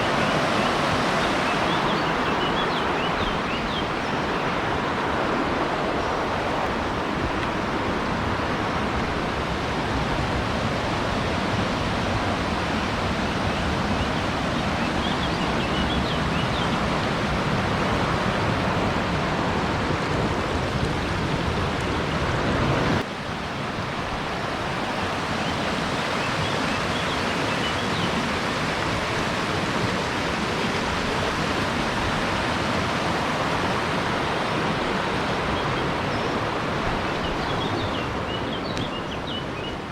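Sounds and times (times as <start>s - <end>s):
rushing water roar: 0.0s - 39.9s.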